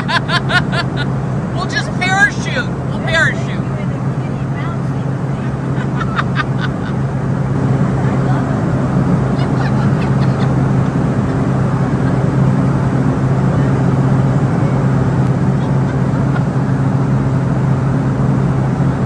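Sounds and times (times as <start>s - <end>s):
constant low hum: 0.0s - 19.0s
jet cabin engine drone: 0.0s - 19.0s.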